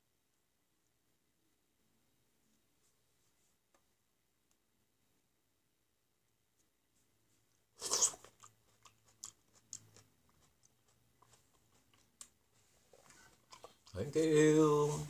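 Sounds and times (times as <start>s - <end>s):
biting into a grape: 7.8s - 12.4s
chewing with mouth clicks: 7.8s - 14.1s.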